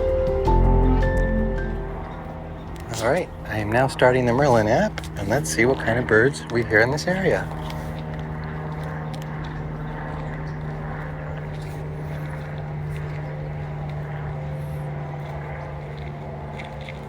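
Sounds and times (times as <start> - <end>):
low engine-like drone: 0.0 - 17.0.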